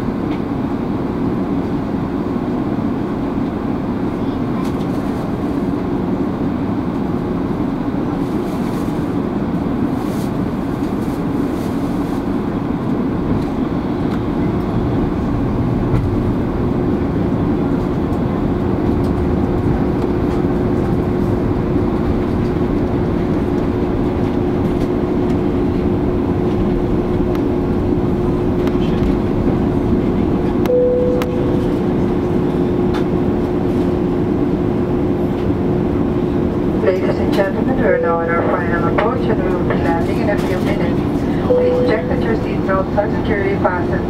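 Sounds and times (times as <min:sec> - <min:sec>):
airplane cabin engine rumble: 0:00.0 - 0:44.0
steady hum: 0:09.0 - 0:44.0.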